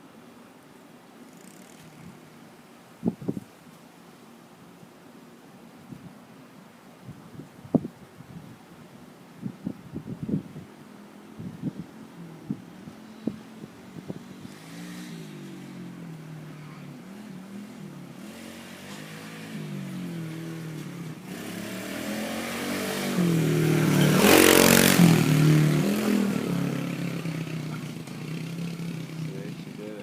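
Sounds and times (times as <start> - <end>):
dirt bike engine passing: 11.4 - 30.0.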